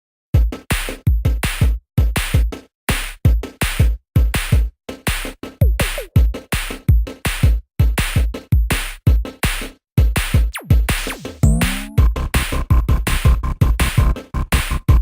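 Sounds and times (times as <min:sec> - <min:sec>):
electronic music: 0:10.4 - 0:15.0
booming bass kicks: 0:11.4 - 0:14.2.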